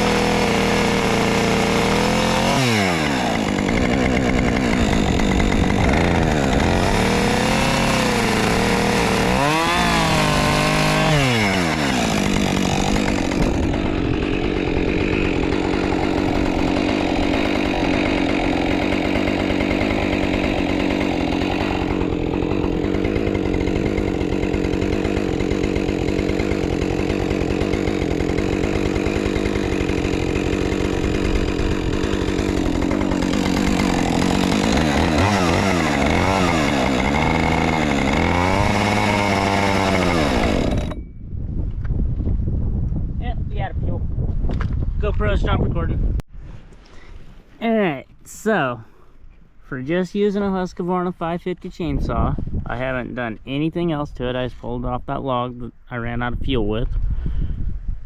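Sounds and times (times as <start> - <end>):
chainsaw revving and cutting wood: 0.0 - 41.0.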